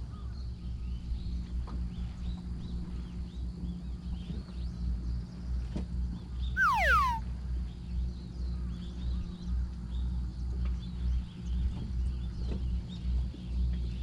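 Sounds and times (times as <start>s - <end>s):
faint quick chirps: 6.6s - 7.2s
loud falling whistle: 6.6s - 7.2s.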